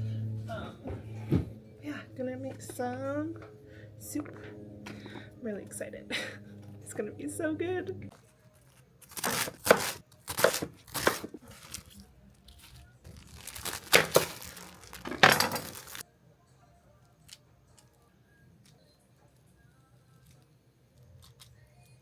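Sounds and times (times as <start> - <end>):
plastic packaging crinkling: 8.2 - 16.0.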